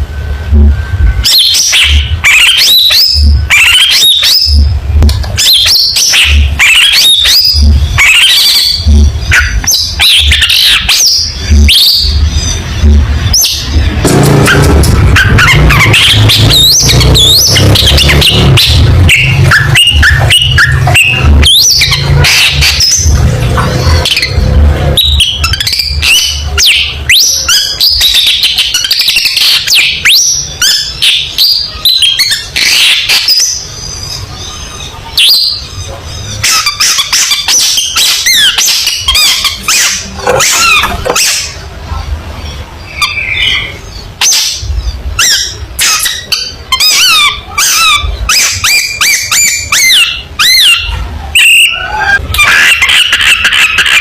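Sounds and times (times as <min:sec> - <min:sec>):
shrike singing harsh chattering song: 0:00.0 - 0:41.8
low rumble: 0:11.2 - 0:26.6.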